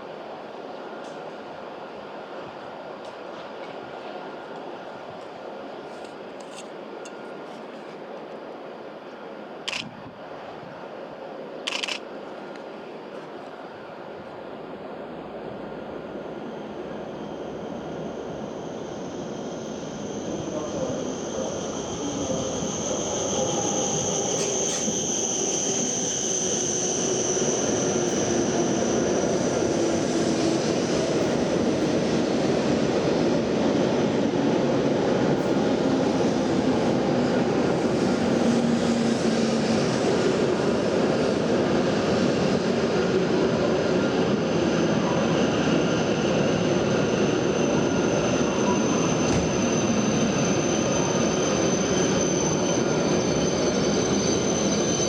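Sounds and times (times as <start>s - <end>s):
train rushing rumble: 14.7s - 55.0s.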